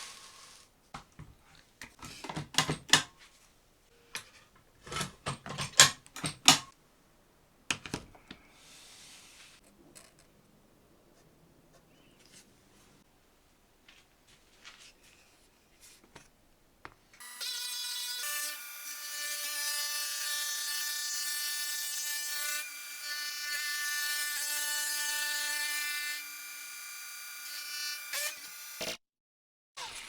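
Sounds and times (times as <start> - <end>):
router bit cutting wood: 17.2 - 29.0.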